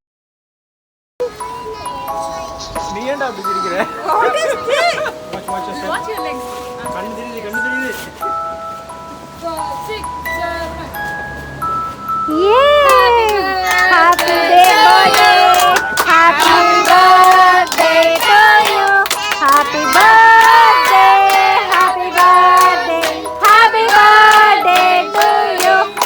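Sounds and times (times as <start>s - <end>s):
person singing over music: 12.3s - 26.0s
hand claps: 12.8s - 26.0s.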